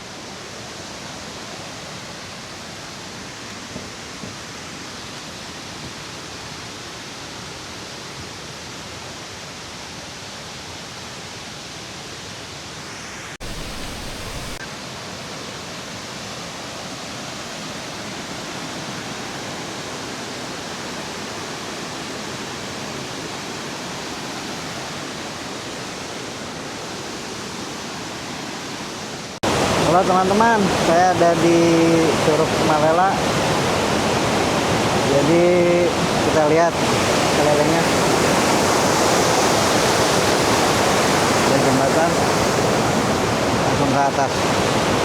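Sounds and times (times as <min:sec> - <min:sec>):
waterfall roaring: 0:00.0 - 0:45.0.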